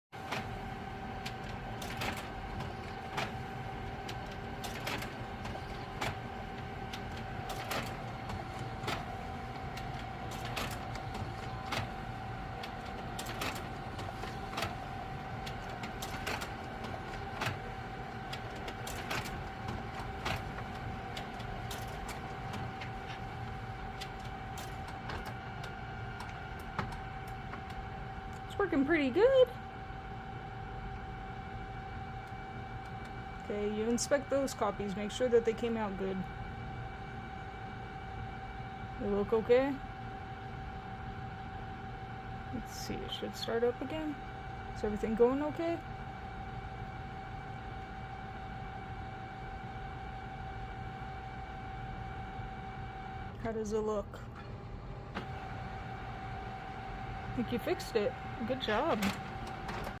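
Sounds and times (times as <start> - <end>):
printer motor whine: 0.2 - 60.0
printer clicks: 1.2 - 28.5, 58.2 - 60.0.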